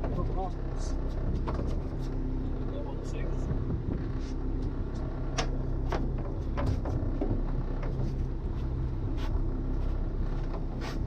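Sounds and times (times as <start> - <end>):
boat engine idling: 0.0 - 11.0
sharp clicks and knocks: 4.6 - 8.2.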